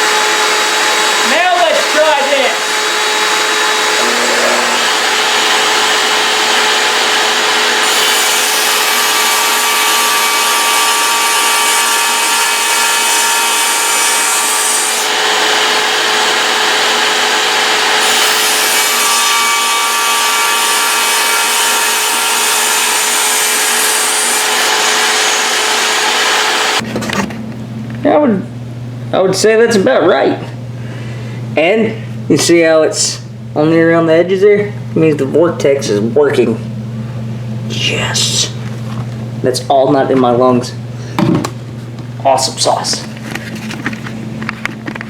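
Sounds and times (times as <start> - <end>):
saw cutting through wood: 0.0 - 26.8
table saw running: 0.0 - 26.8
shop vac running: 0.0 - 45.0.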